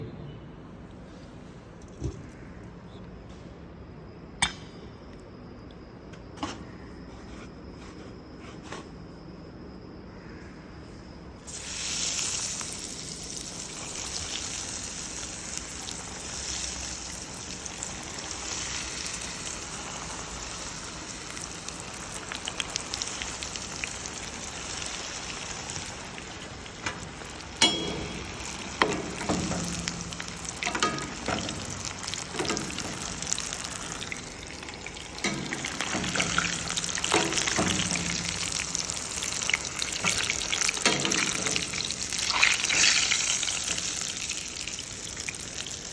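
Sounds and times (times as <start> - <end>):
food sizzling in hot oil: 11.5 - 45.9
knocks and clinks: 27.6 - 29.5.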